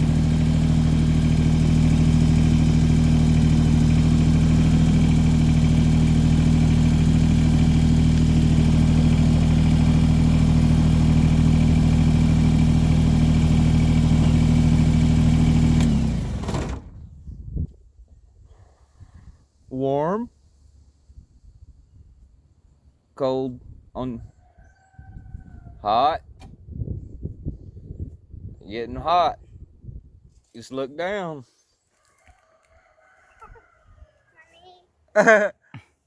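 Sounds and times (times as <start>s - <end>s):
tractor engine running: 0.0s - 17.2s.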